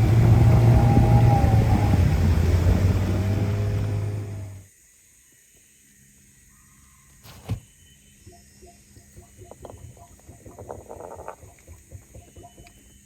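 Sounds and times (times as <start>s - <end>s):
outboard motor running: 0.0s - 4.6s.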